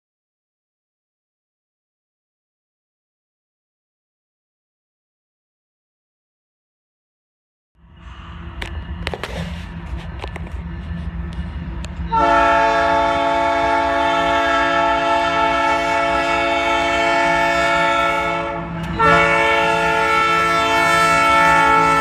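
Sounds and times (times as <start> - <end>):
locomotive air horn blast: 12.1 - 22.0.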